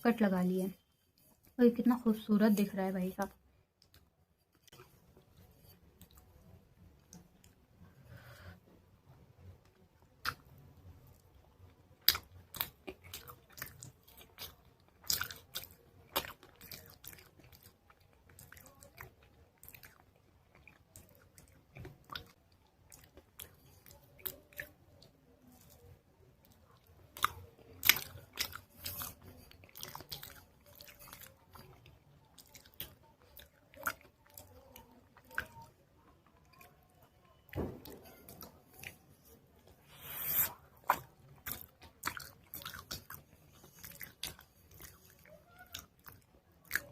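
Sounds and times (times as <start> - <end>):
chewing with crunches: 9.6 - 46.9.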